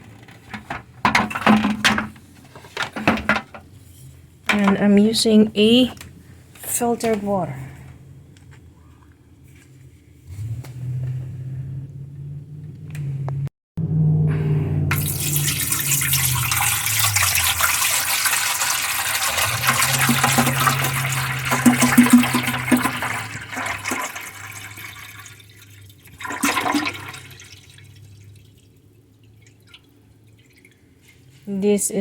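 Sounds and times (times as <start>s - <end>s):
water pouring into a tank: 14.9s - 31.3s.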